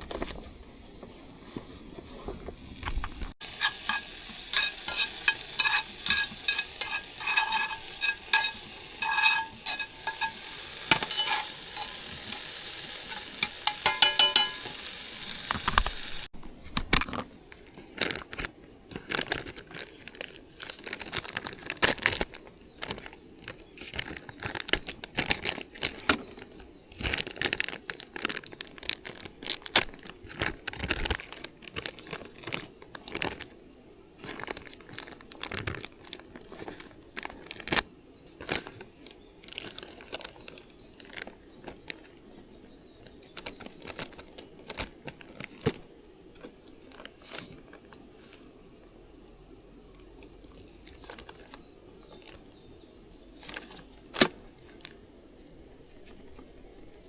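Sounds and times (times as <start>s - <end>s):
handling noises and clicks: 2.7s - 14.8s
food sizzling in a metal pan: 2.7s - 16.3s
metal utensils clinking on pan: 3.4s - 15.0s.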